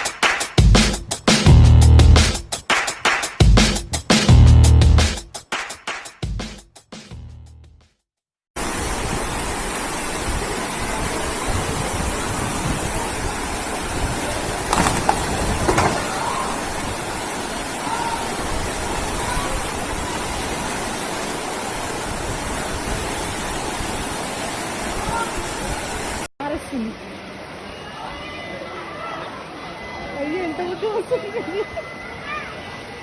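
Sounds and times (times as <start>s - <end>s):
floodwater rushing: 8.6s - 33.0s.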